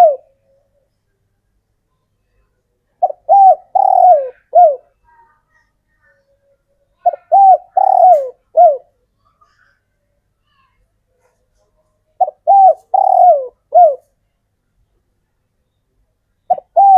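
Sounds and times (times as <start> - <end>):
dove cooing: 0.0 - 0.5, 3.0 - 5.0, 7.0 - 8.9, 12.2 - 14.1, 16.5 - 16.9.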